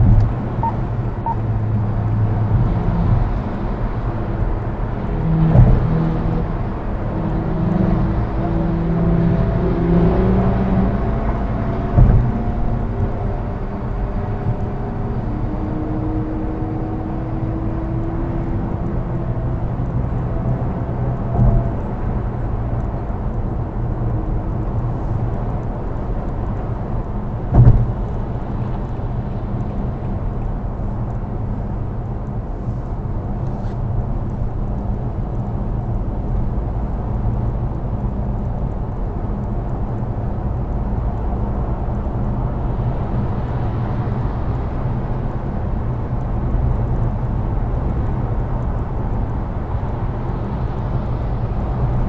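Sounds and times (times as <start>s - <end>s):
car driving rumble: 0.0s - 52.0s
sharp thump: 27.5s - 27.9s.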